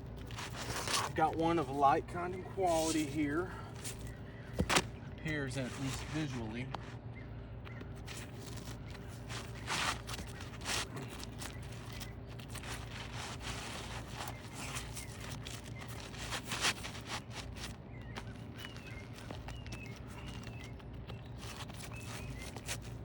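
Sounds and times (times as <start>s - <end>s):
roof shingles scraping: 0.2s - 3.2s, 8.0s - 23.0s.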